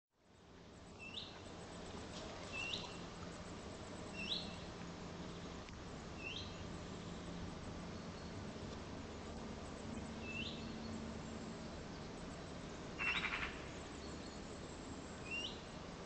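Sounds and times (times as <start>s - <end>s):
faint low hum: 0.2s - 16.0s
small bird rising calls: 13.0s - 13.7s.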